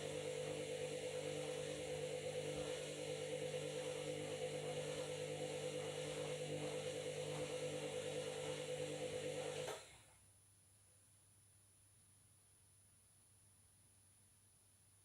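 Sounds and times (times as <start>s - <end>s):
washing machine spinning: 0.0s - 9.8s.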